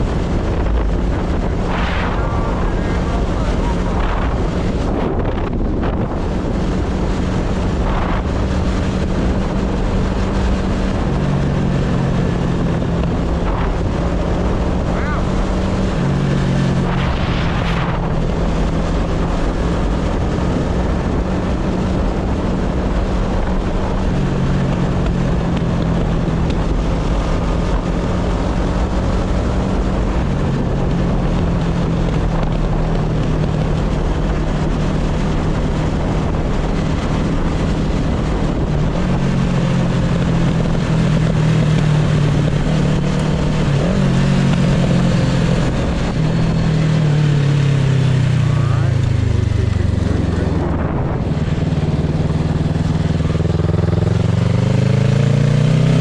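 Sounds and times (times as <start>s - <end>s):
motorcycle engine running: 0.0s - 56.0s
wind on microphone: 0.0s - 56.0s.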